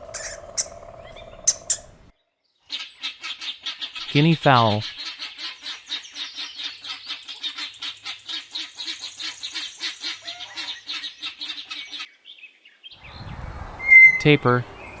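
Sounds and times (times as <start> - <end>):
guinea fowl calling: 0.0 - 2.1, 5.0 - 12.1.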